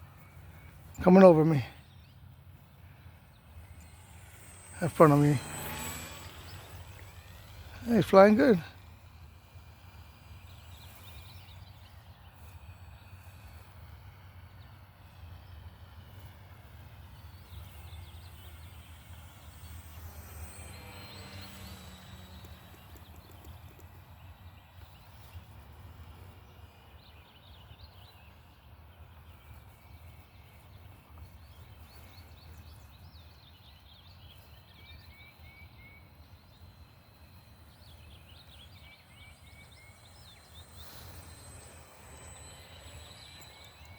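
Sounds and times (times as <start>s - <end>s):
birds chirping: 0.0s - 43.9s
model plane motor buzzing: 0.0s - 43.9s.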